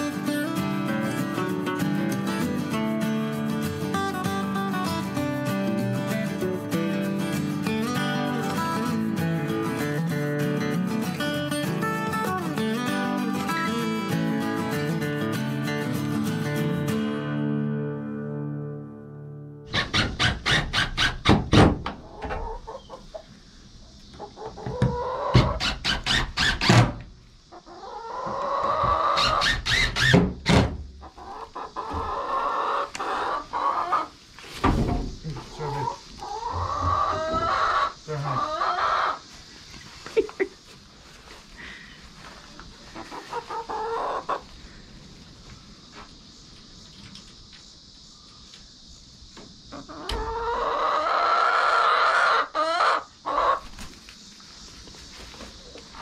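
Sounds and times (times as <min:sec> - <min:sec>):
chickens clucking and squawking: 0:19.7 - 0:30.2, 0:31.0 - 0:45.9, 0:48.1 - 0:56.0.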